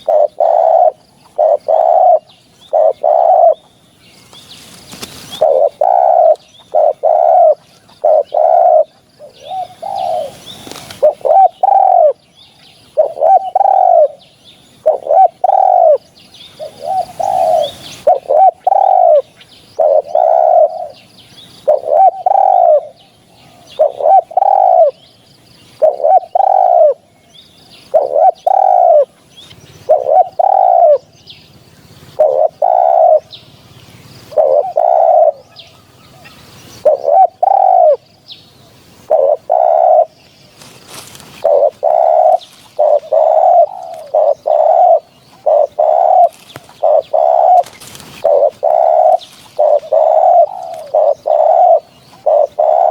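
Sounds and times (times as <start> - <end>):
dove cooing: 0.0 - 3.8, 4.7 - 25.1, 25.8 - 27.2, 27.8 - 29.2, 29.8 - 52.9.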